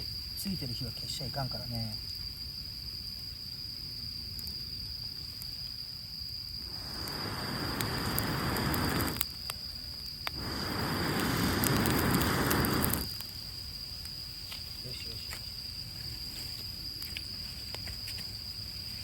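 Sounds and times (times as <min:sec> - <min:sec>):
fire crackling: 0:02.3 - 0:19.0
person blowing on fire: 0:06.6 - 0:09.2, 0:10.3 - 0:13.2.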